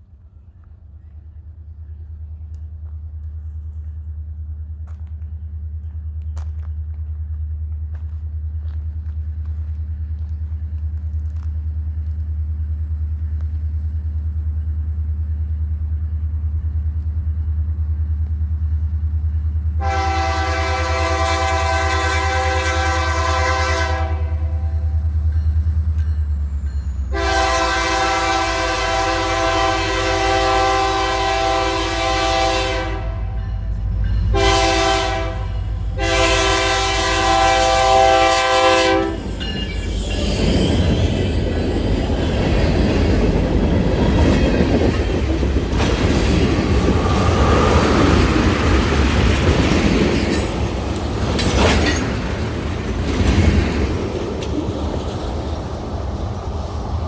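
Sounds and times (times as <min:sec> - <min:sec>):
locomotive engine rumble: 0:00.0 - 0:57.0
locomotive horn blasts: 0:19.8 - 0:25.0, 0:27.1 - 0:39.3
train wheels clattering and squealing: 0:24.8 - 0:27.4, 0:38.6 - 0:57.0.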